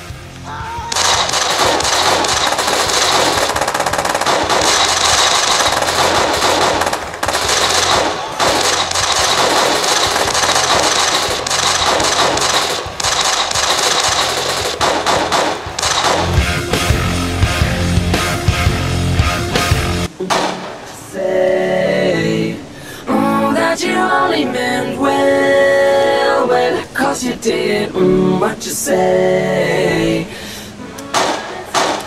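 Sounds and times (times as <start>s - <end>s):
rapid automatic gunfire: 0.9s - 16.9s, 31.2s - 32.0s.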